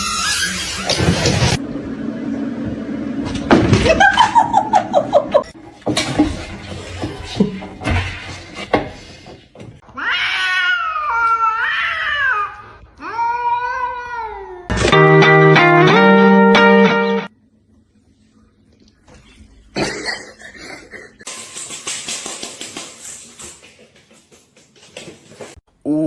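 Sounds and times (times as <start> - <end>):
cat meowing: 10.0 - 14.7.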